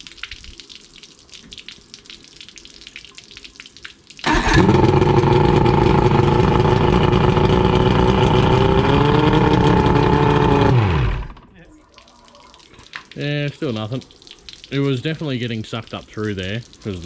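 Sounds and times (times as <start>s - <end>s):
outboard motor running: 4.3s - 11.4s.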